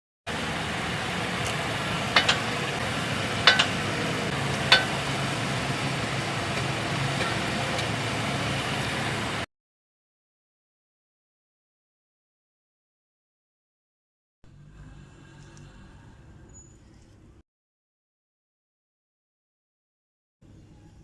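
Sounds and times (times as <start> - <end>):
car engine humming: 0.3 - 9.5.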